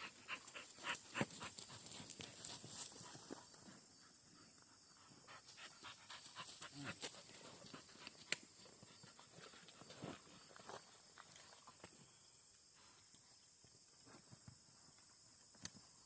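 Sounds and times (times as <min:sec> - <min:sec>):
dog panting: 0:00.0 - 0:08.2.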